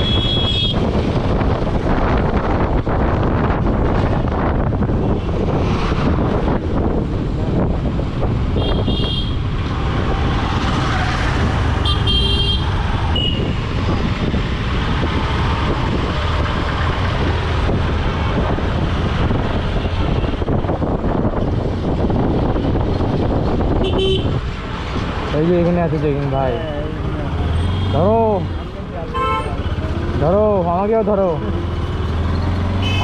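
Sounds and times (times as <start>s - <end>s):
vehicle horns beeping: 0.0s - 0.8s, 8.6s - 9.4s, 11.8s - 13.6s, 23.8s - 24.4s, 29.1s - 29.8s, 32.8s - 33.0s
wind on microphone: 0.0s - 11.8s, 12.6s - 25.2s.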